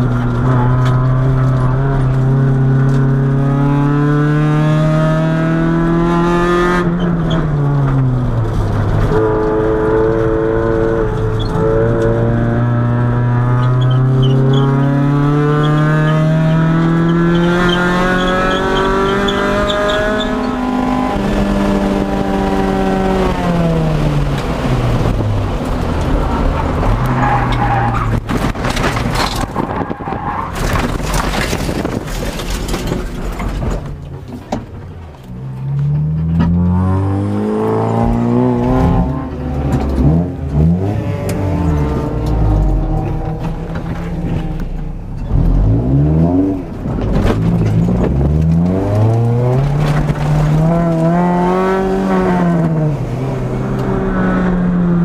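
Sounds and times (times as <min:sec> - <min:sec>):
car engine revving: 0:00.0 - 0:33.6, 0:35.3 - 0:55.0
tyres scrubbing and rattling on dirt: 0:24.4 - 0:37.0, 0:37.8 - 0:54.3.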